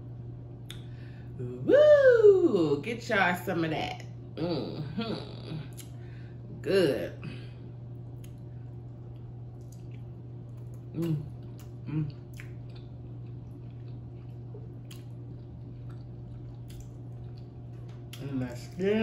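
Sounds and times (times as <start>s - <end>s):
steady low hum: 0.0s - 19.0s
person chewing: 8.0s - 18.2s
wet mouth sounds and clicks: 8.2s - 8.4s, 9.1s - 15.2s, 15.8s - 17.5s.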